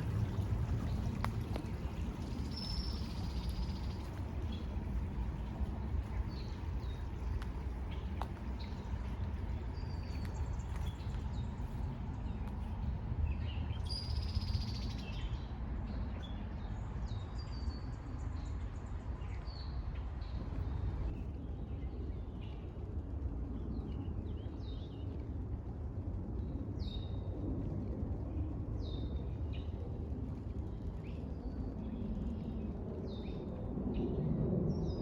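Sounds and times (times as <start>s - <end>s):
songbirds chirping: 0.0s - 22.8s
steady low rumble: 0.0s - 35.0s.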